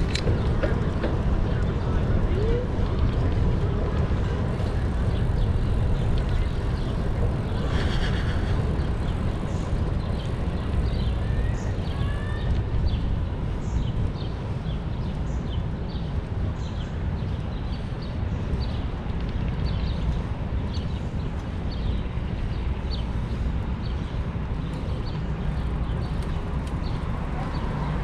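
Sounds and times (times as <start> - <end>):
city traffic: 0.0 - 28.0
wind on microphone: 0.0 - 28.0.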